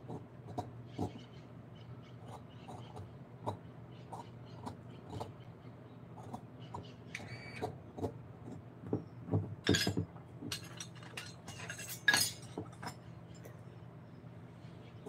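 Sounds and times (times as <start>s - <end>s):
faint steady hum: 0.0s - 15.0s
clicks and clinks of small objects: 9.6s - 13.6s.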